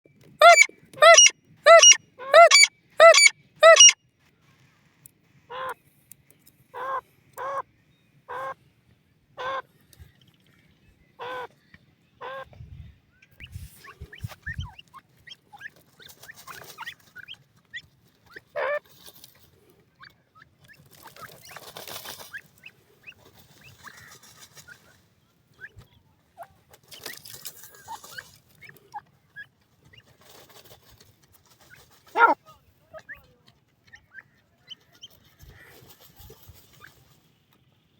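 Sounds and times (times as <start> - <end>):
francolin harsh alarm calls: 0.4 - 4.0, 32.2 - 32.4
rustling: 29.6 - 32.6.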